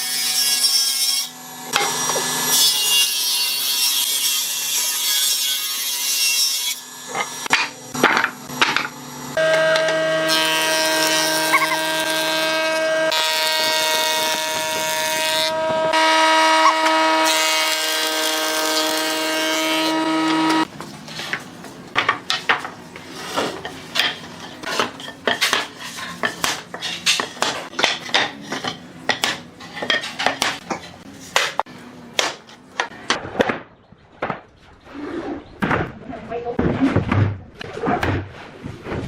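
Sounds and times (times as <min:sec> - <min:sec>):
power tool whining: 0:09.2 - 0:20.7
tools clicking and knocking on wood: 0:23.6 - 0:33.2.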